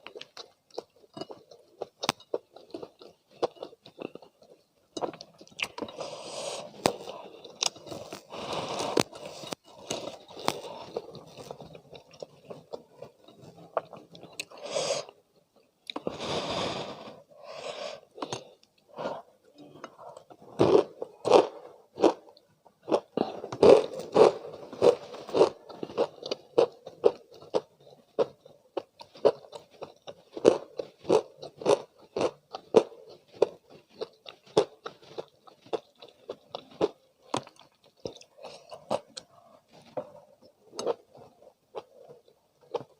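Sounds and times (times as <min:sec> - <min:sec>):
chewing: 0:00.0 - 0:16.1, 0:19.9 - 0:42.9
crunching fried chicken: 0:20.6 - 0:40.2.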